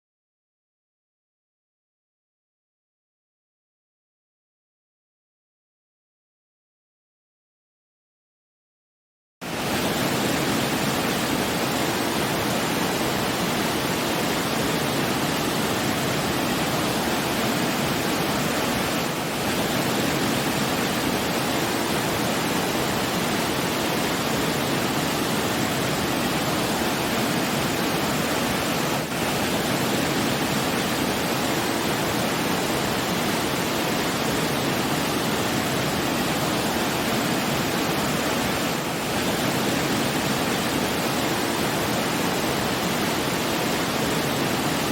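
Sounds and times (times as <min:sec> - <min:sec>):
rushing water roar: 0:09.4 - 0:44.9.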